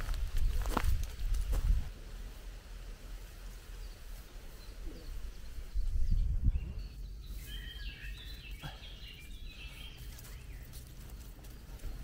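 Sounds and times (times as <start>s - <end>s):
songbird singing: 2.9s - 12.0s.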